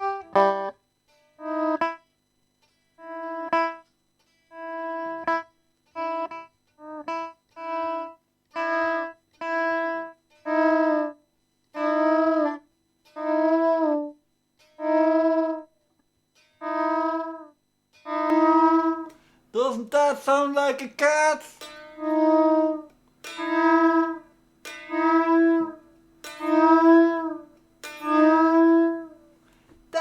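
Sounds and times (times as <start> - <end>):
overdriven electric guitar notes: 0.0 - 0.8, 18.1 - 30.0.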